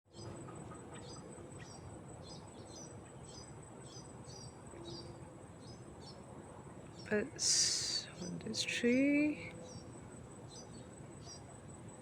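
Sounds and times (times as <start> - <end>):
bird chirping: 0.1 - 6.2, 6.9 - 9.9, 10.5 - 11.5.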